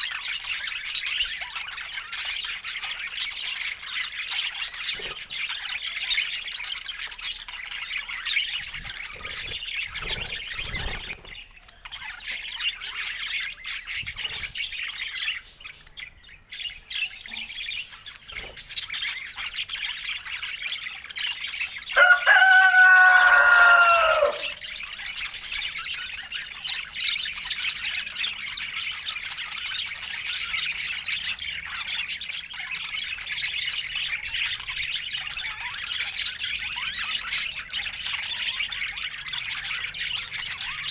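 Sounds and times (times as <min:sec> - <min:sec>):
budgerigars chattering and chirping: 0:00.0 - 0:40.9
drawn-out lower bird call: 0:22.0 - 0:24.7.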